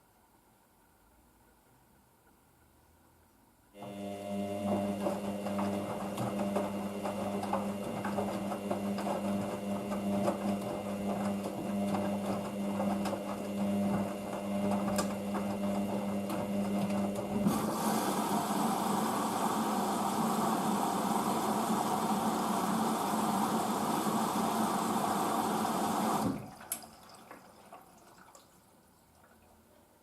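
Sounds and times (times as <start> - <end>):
washing machine rushing noise: 3.8 - 28.0
washing machine motor hum: 3.8 - 28.3.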